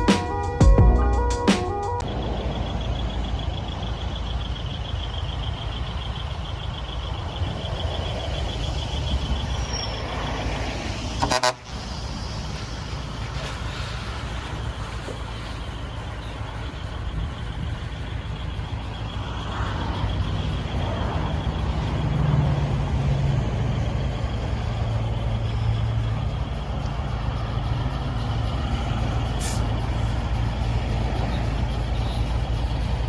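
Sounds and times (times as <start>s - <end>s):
truck engine running: 0.0s - 33.0s
short sharp hiss: 29.4s - 29.7s.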